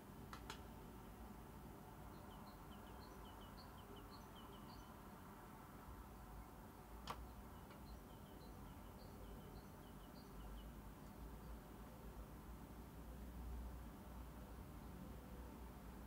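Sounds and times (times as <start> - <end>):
faint high bird chirps: 2.1 - 5.0, 7.2 - 11.6.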